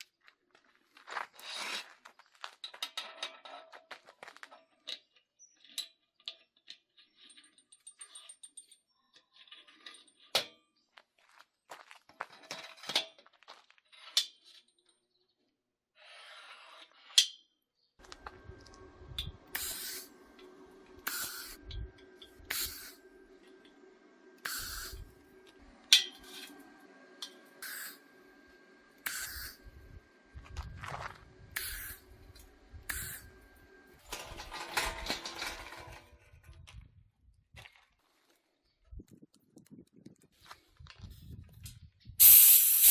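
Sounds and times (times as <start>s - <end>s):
small motor running: 18.0s - 36.0s
short hiss: 21.0s - 21.6s, 24.4s - 25.0s, 27.6s - 28.0s, 29.0s - 29.6s, 31.6s - 32.0s, 42.2s - 42.9s.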